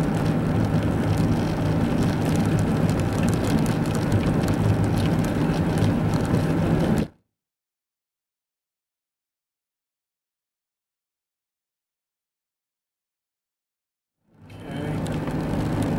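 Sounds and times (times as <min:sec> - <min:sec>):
car cabin engine and tyre drone: 0:00.0 - 0:07.2, 0:14.3 - 0:15.9.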